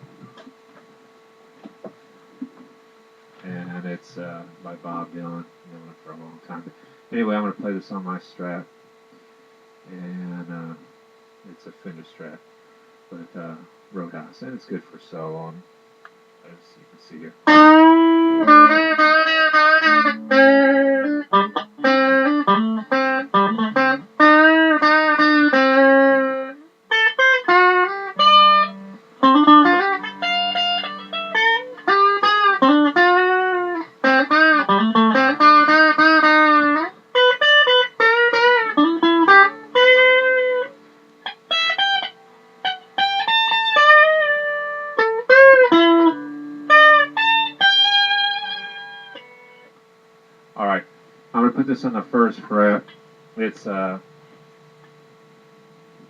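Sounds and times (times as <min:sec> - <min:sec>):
electric guitar lead line: 0:16.4 - 0:49.8.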